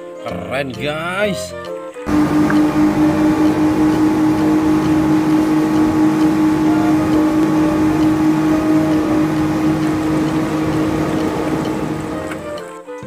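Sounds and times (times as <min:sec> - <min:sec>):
low rumbling wash: 0:02.1 - 0:12.5
motor drone: 0:02.1 - 0:12.6.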